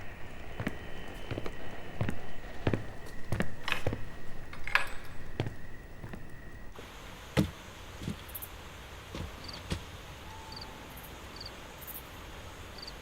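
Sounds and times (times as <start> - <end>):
insects chirping: 0.0 - 13.0
knocks or footsteps: 0.5 - 6.8, 7.4 - 8.4, 9.2 - 9.9.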